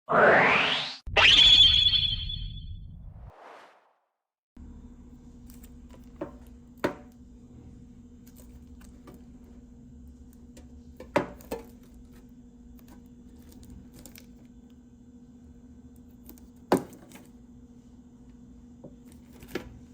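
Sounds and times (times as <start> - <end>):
steady low hum: 4.6 - 19.9.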